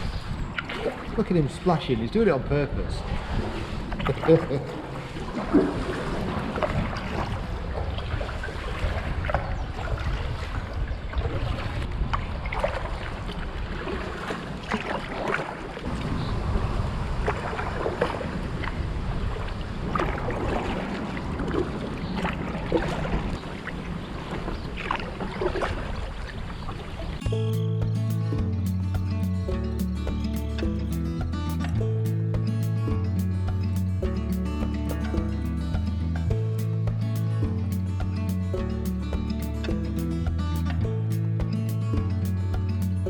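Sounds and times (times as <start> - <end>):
wind buffeting microphone: 0.0 - 4.2, 5.2 - 14.6, 15.8 - 24.2
kayak paddles splashing: 0.4 - 1.8, 3.0 - 27.2
music: 27.2 - 43.0.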